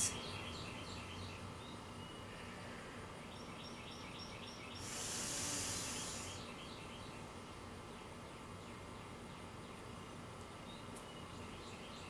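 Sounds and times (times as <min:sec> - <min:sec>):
small bird chirping: 0:03.2 - 0:07.3
brief airy hiss: 0:04.8 - 0:06.5.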